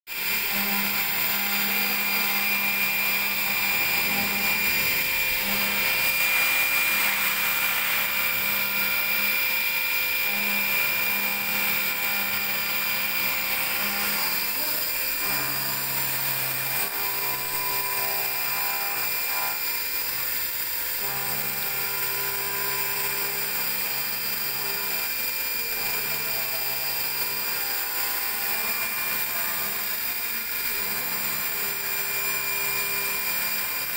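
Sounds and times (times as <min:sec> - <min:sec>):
machining center high whine: 0:00.2 - 0:17.8.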